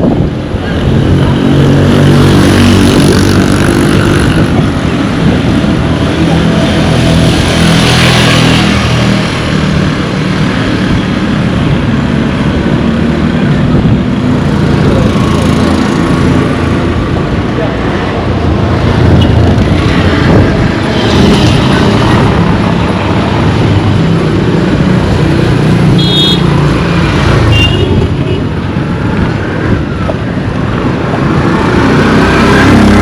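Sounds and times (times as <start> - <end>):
vehicles passing: 0.0 - 33.0.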